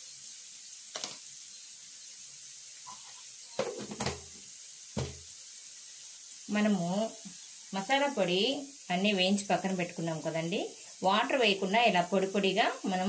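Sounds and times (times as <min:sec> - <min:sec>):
beans sizzling in oil: 0:00.0 - 0:13.0
knocks against pan: 0:03.6 - 0:04.3, 0:05.0 - 0:05.3.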